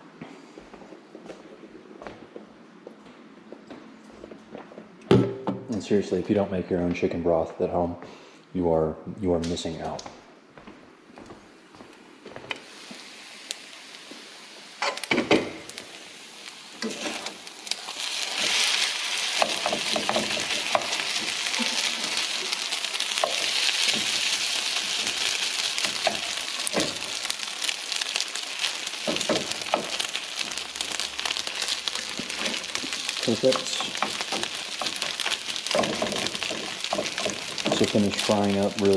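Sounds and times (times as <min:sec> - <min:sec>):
food sizzling in a pan: 0:12.6 - 0:38.9.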